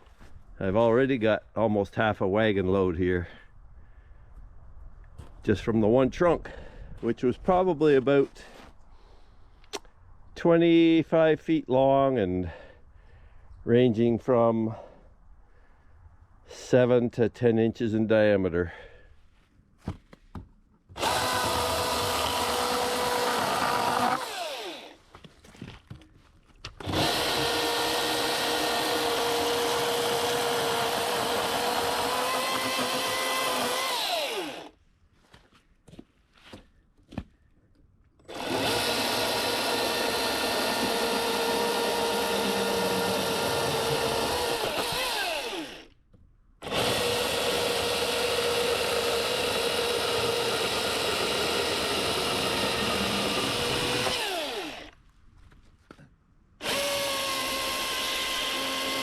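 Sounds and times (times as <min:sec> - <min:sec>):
chainsaw cutting wood: 0:20.9 - 0:25.0, 0:26.8 - 0:34.8, 0:38.2 - 0:46.0, 0:46.6 - 0:55.0, 0:56.6 - 0:59.0.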